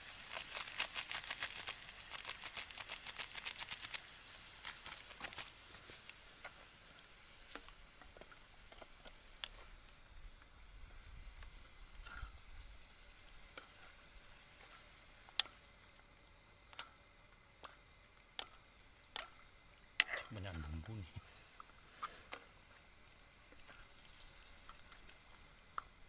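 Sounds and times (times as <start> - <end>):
fish sizzling in a pan: 0.0 - 26.0
small pops and clicks: 17.6 - 19.4.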